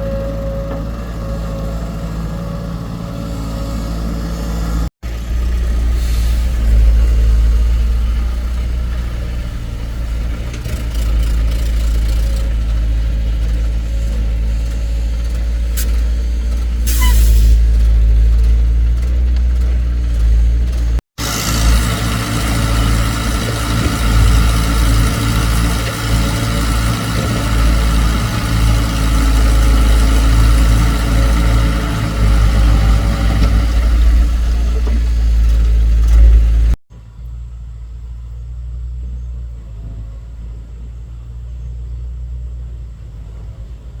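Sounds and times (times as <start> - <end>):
excavator diesel engine rumbling: 0.0 - 44.0
quiet engine hum: 22.4 - 44.0.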